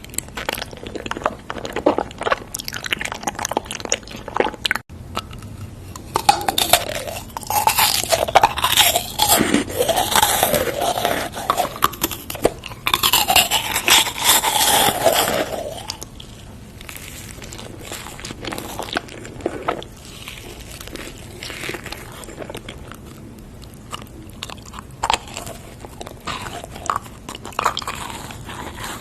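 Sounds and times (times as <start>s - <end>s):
person chewing crunchy food: 0.0s - 29.0s.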